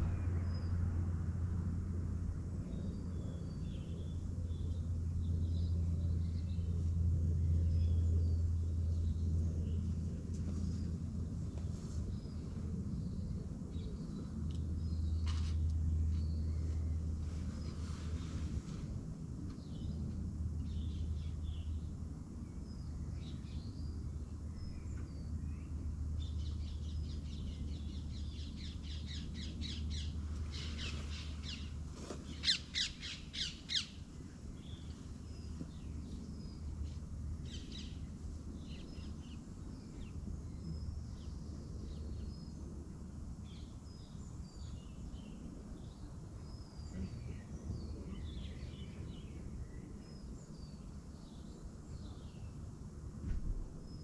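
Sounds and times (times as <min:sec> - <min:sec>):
low hum: 0:00.0 - 0:45.7
birds chirping: 0:20.6 - 0:42.6.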